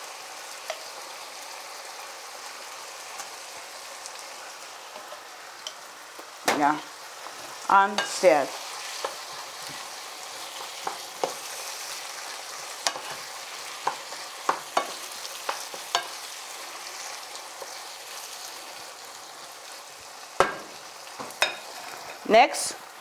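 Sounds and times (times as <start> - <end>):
vegetables sizzling in a frying pan: 0.0 - 23.0
spoon clicking against pan: 0.7 - 0.9, 13.8 - 16.2.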